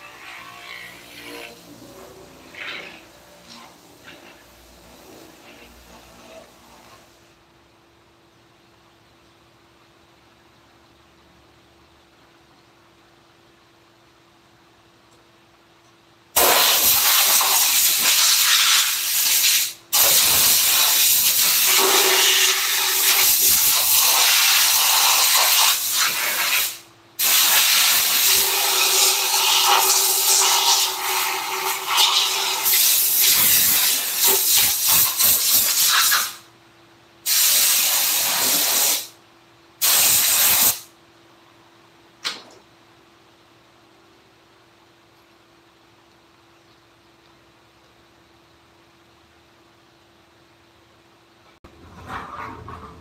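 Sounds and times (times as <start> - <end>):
compressed air hissing from air gun: 16.4 - 31.4, 32.0 - 36.4, 37.3 - 39.2, 39.8 - 40.9.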